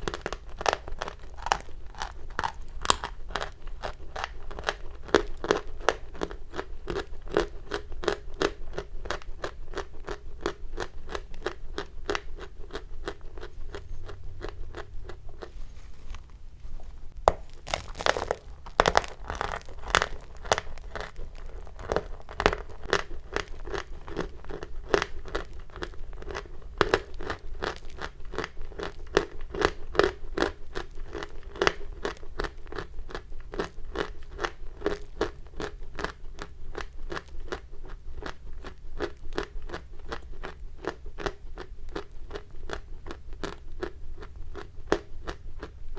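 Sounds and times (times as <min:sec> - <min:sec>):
chalk crunching: 0:13.0 - 0:22.9.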